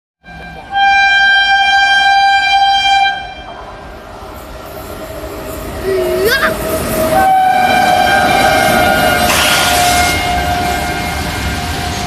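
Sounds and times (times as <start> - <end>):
train horn blast: 0.2 - 3.6, 6.9 - 12.0
passing train running noise: 0.2 - 12.0.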